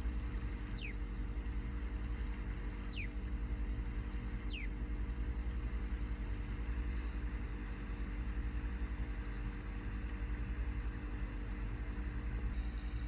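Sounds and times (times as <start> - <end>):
low motor hum: 0.0 - 13.0
whistled bird calls: 0.7 - 1.0, 2.8 - 3.2, 4.4 - 4.8.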